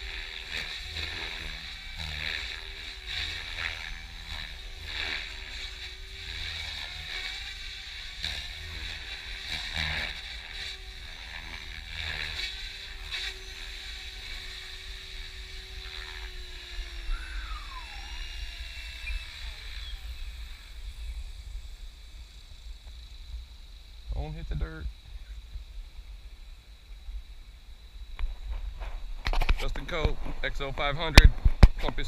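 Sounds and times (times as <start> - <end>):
rotor blades whooshing: 0.0 - 23.3
motor whine: 0.0 - 32.0.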